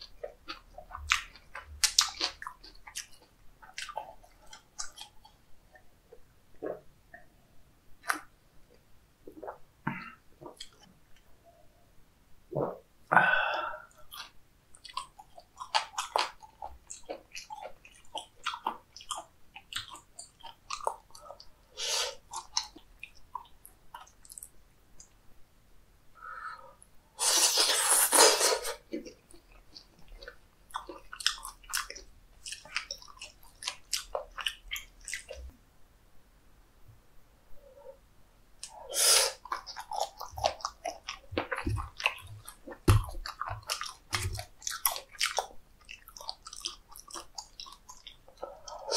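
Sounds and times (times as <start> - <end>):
wet chewing with mouth clicks: 0.0 - 7.3, 13.9 - 25.2, 27.3 - 35.6, 38.6 - 48.9.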